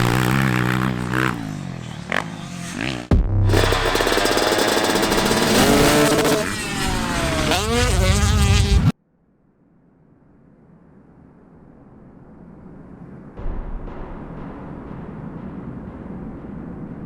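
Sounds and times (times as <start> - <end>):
motocross bike engines revving: 0.0 - 8.9.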